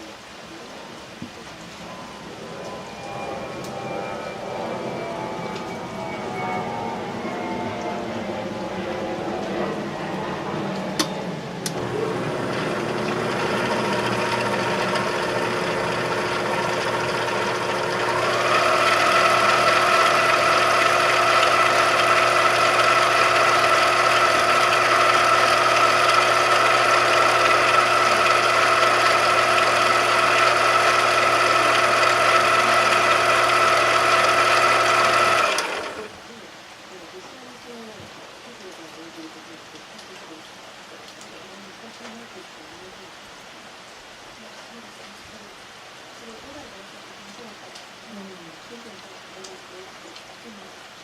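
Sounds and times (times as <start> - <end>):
electric motor whining: 1.8 - 36.1.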